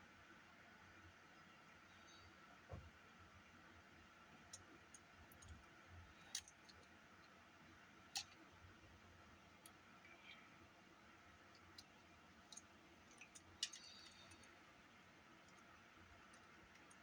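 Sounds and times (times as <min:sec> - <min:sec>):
small clicks and taps: 0:08.1 - 0:08.4, 0:11.5 - 0:14.5.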